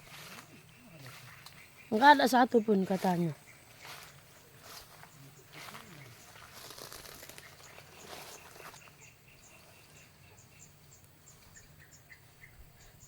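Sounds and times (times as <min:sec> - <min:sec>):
faint rustling: 0:02.9 - 0:09.0.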